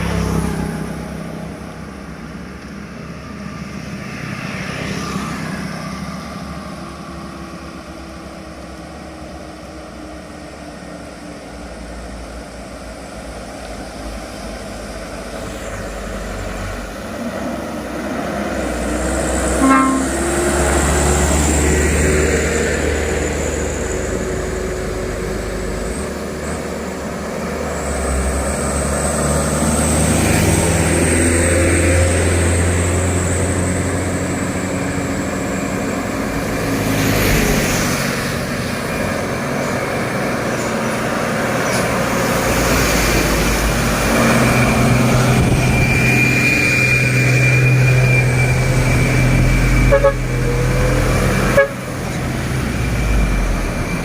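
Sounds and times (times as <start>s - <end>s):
truck diesel engines labouring: 0.0s - 54.0s
vehicle horn tooting: 19.6s - 20.4s, 49.8s - 50.4s, 51.5s - 51.9s.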